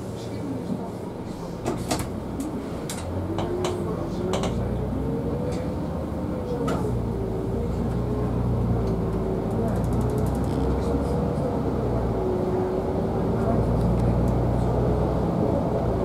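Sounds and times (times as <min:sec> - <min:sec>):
vehicle low hum with whine: 0:00.0 - 0:16.0
sharp clicks and rattles: 0:09.5 - 0:10.6.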